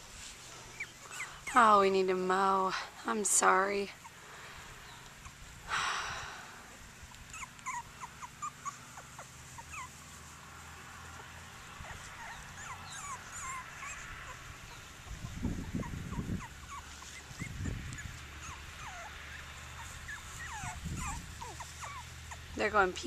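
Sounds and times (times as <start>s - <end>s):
puppies whimpering and squealing: 0.6s - 2.0s, 7.2s - 10.2s, 11.7s - 23.0s.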